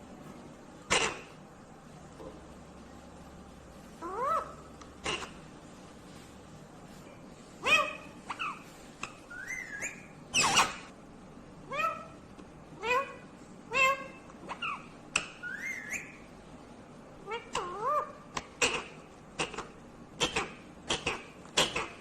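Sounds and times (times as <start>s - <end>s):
parrot squawking: 0.8s - 1.4s, 4.0s - 5.4s, 7.6s - 10.9s, 11.7s - 12.2s, 12.8s - 16.3s, 17.2s - 22.0s
parrot rising whistles: 9.3s - 10.8s, 15.4s - 16.2s.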